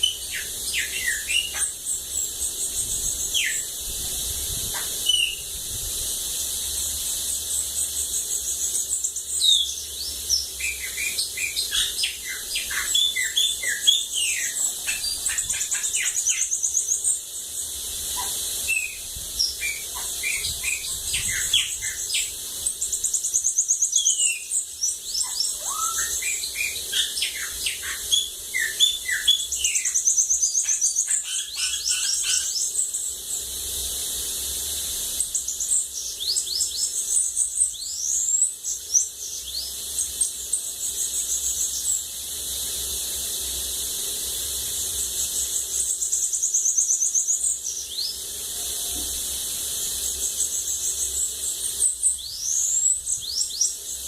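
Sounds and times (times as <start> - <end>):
bird chirps and whistled glides: 0.0 - 3.9, 4.5 - 33.4, 34.4 - 42.1, 44.8 - 54.0
bird singing buzzy trills: 0.0 - 54.0.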